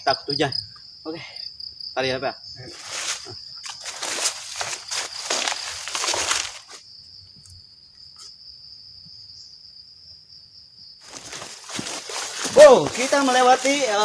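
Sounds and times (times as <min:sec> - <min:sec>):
insect trilling: 0:00.0 - 0:09.8, 0:10.8 - 0:14.0
loud rustling: 0:11.0 - 0:14.0.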